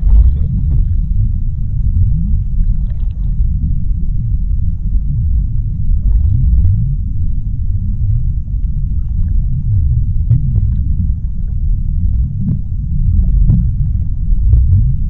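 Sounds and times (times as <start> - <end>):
deep underwater rumble: 0.0 - 15.0.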